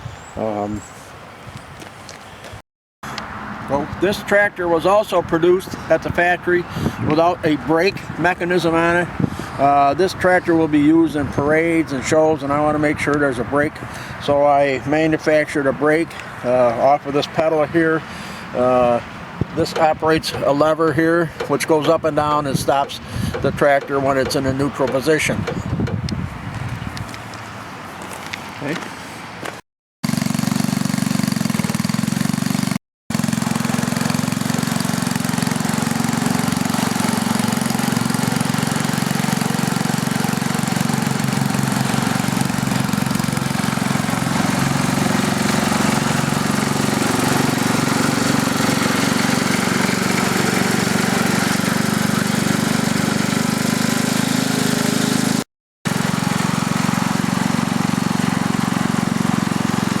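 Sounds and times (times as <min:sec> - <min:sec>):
small tractor engine running: 0:19.5 - 0:26.2, 0:30.0 - 1:00.0.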